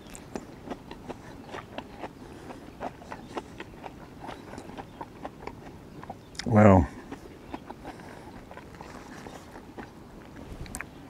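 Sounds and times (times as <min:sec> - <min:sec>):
person chewing food: 0:00.0 - 0:11.0
wet mouth clicks and smacks: 0:02.8 - 0:06.5, 0:10.3 - 0:10.9.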